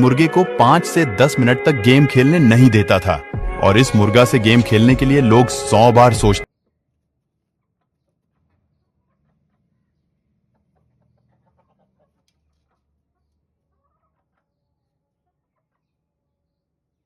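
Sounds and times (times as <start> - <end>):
faint chicken clucking: 6.6 - 17.0.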